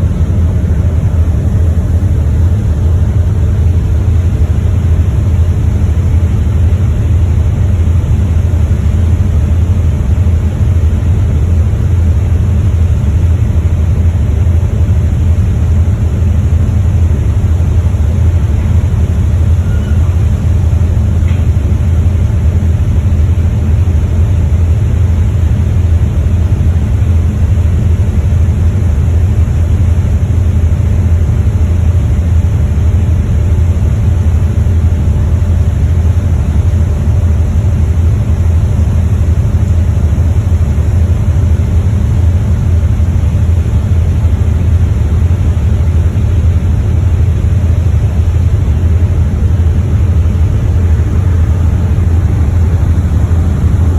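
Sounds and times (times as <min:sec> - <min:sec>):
ferry rumble and rushing: 0:00.0 - 0:10.3, 0:47.8 - 0:53.9.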